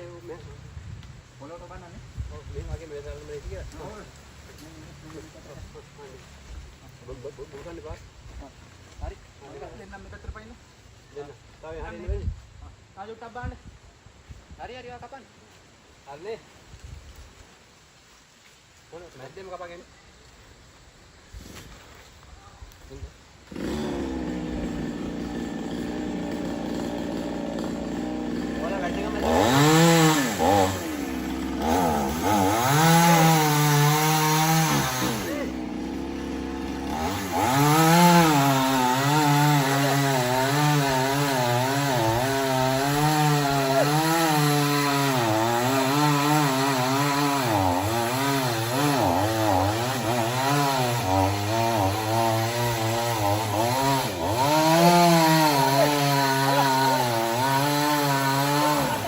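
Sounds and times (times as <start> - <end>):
chainsaw cutting wood: 23.4 - 59.0.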